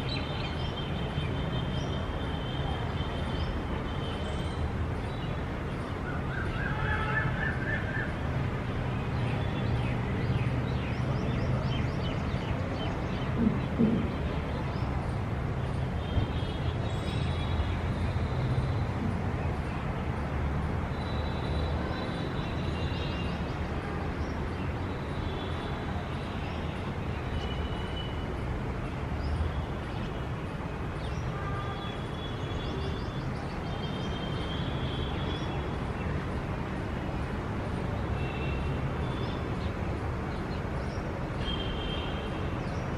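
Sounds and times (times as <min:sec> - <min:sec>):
distant traffic rumble: 0:00.0 - 0:42.9
loud knocks: 0:13.4 - 0:14.3.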